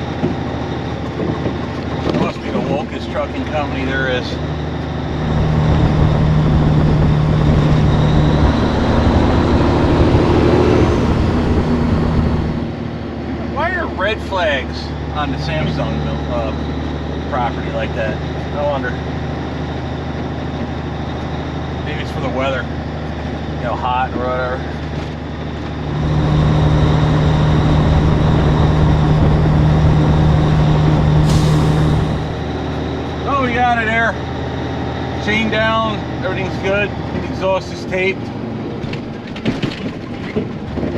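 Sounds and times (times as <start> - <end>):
diesel truck engine from inside cab: 0.0 - 40.9
short hiss: 31.2 - 32.2.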